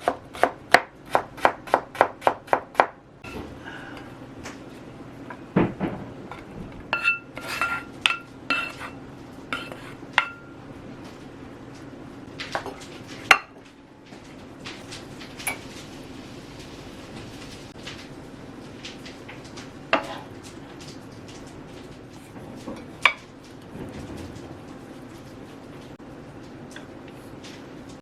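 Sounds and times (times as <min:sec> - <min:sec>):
knife chopping on cutting board: 0:00.0 - 0:03.0
steady low hum: 0:02.6 - 0:28.0
dishes and utensils clinking: 0:06.3 - 0:09.0.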